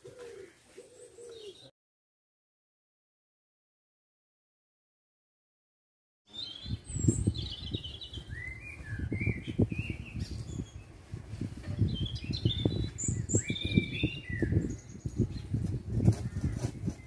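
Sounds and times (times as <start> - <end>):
songbirds chirping: 0.0 - 1.7, 6.3 - 17.0.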